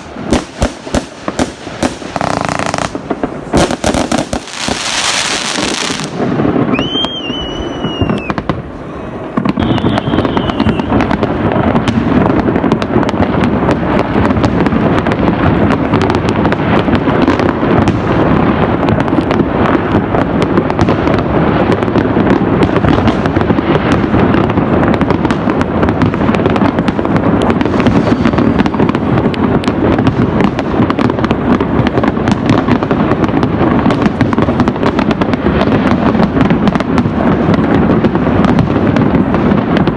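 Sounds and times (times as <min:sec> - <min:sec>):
fireworks crackling and banging: 0:00.0 - 0:39.9
whistling firework tone: 0:02.1 - 0:11.6, 0:27.5 - 0:29.2.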